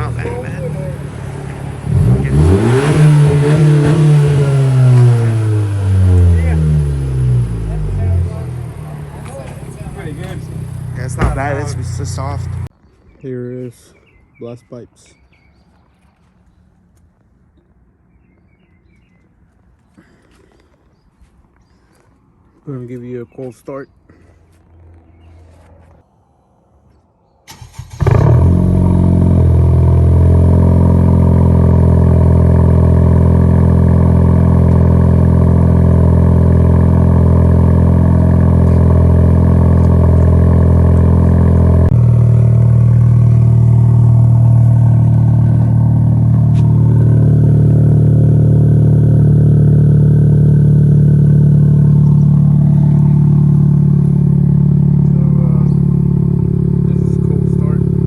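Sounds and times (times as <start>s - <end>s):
car engine idling loudly: 0.0s - 12.7s, 28.0s - 58.0s.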